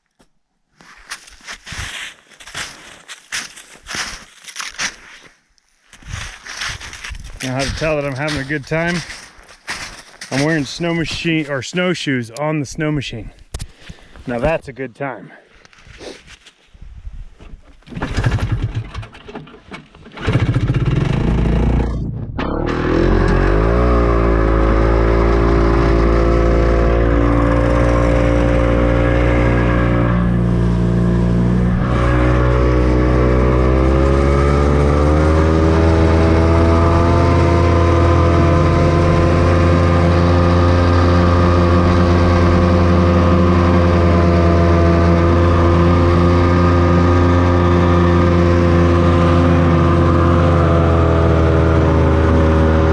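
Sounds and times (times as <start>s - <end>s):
snowmobile engine running: 6.0s - 11.9s, 20.2s - 52.9s.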